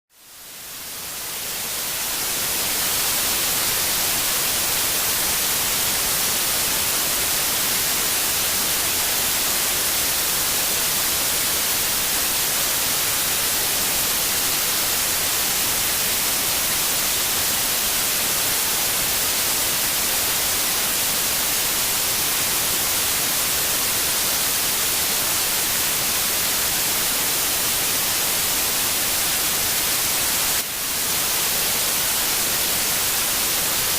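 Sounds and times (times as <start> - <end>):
white noise hiss: 0.1 - 33.9.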